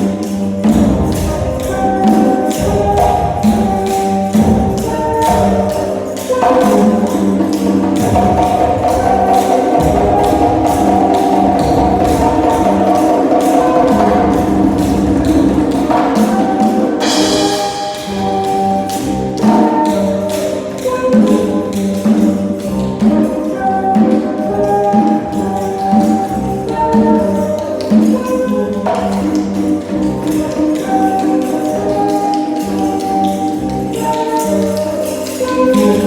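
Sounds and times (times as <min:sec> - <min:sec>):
held melodic notes: 0:00.0 - 0:36.0
percussion taps and jingles: 0:00.0 - 0:36.0.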